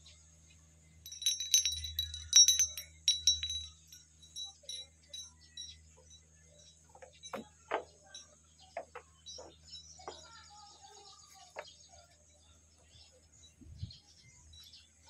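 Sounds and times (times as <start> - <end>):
birds chirping: 1.0 - 15.0.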